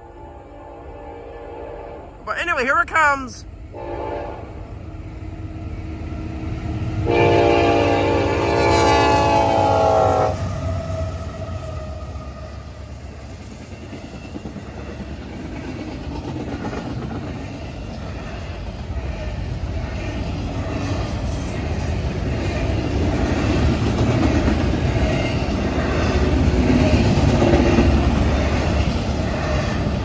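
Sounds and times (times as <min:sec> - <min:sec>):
train rumbling: 0:03.1 - 0:30.0
locomotive horn blast: 0:07.0 - 0:10.4.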